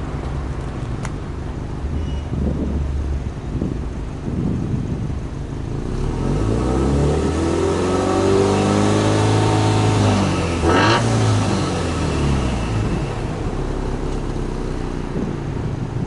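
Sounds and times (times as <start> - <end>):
car engine revving: 5.6 - 16.0.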